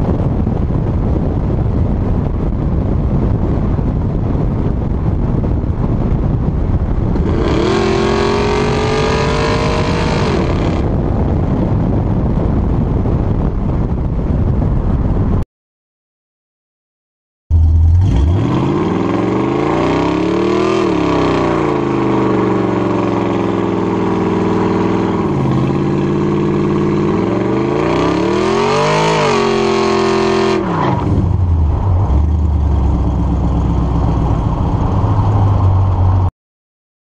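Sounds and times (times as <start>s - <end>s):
steady low rumble: 0.0s - 15.4s, 30.4s - 36.3s
car engine revving: 6.9s - 11.0s, 17.5s - 36.0s.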